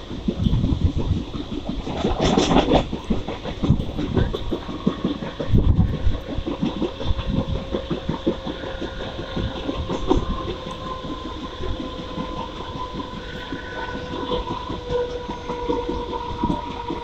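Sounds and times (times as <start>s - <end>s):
steady train hum: 0.0s - 17.0s
train wheels clattering on rails: 0.0s - 17.0s.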